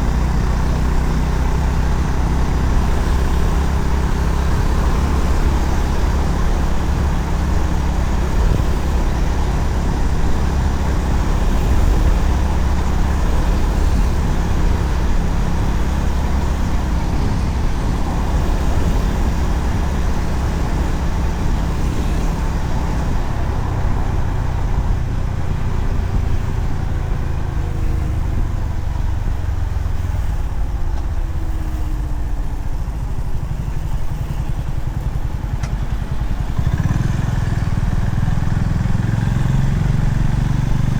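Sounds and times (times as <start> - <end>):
wind rumble on microphone: 0.0 - 31.5
motorcycle engine running: 0.0 - 40.9.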